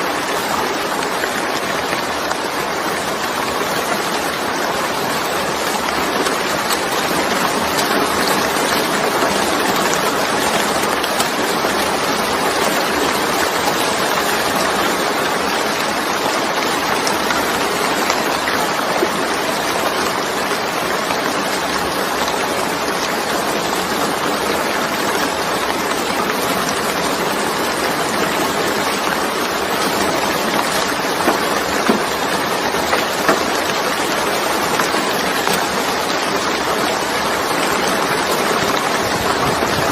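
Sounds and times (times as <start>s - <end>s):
heavy rain falling: 0.0s - 39.9s
raindrop hits: 25.3s - 39.9s.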